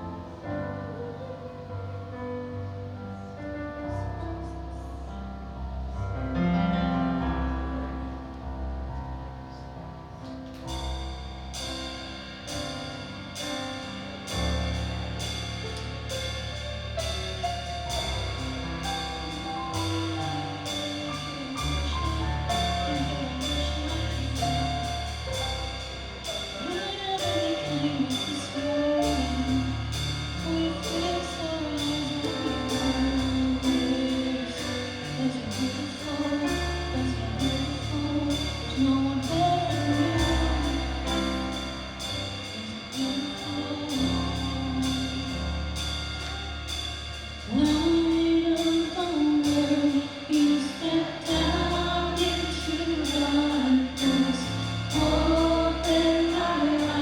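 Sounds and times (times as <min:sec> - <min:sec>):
band playing worship music: 0:10.5 - 0:57.0
people singing: 0:26.6 - 0:41.6, 0:49.8 - 0:57.0.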